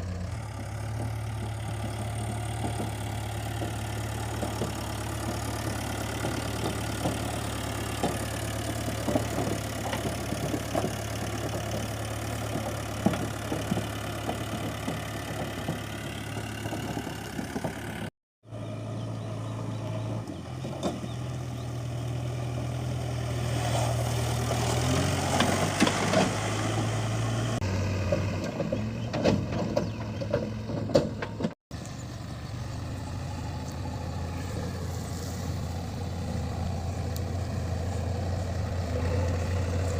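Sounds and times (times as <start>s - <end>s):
diesel engine running: 0.0s - 39.9s
knocks and clatter: 0.5s - 18.1s, 24.8s - 26.9s, 28.0s - 31.6s.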